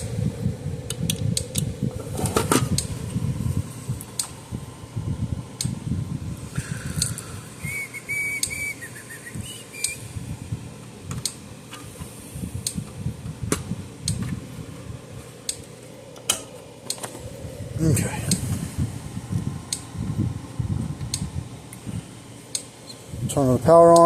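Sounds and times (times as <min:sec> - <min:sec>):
person whistling: 0:07.6 - 0:10.1.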